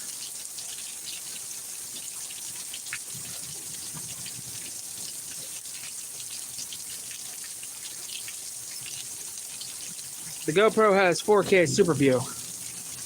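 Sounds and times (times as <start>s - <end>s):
water drips and splashes: 0.0s - 13.0s
steady rain falling: 7.9s - 13.0s.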